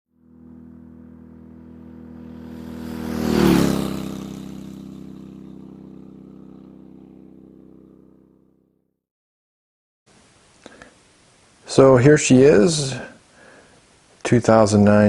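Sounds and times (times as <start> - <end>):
motorcycle engine passing by: 0.1 - 8.8.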